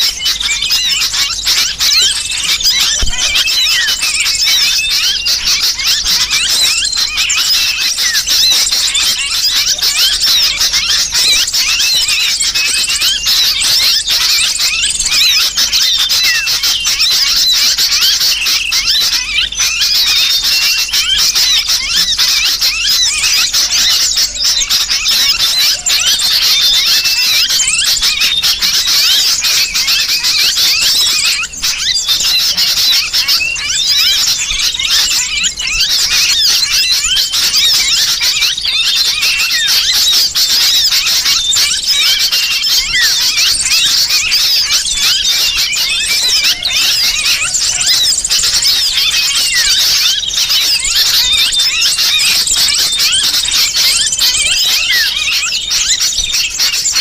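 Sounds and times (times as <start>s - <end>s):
small birds chirping: 0.0s - 57.0s
trapped bird distress calls: 0.0s - 57.0s.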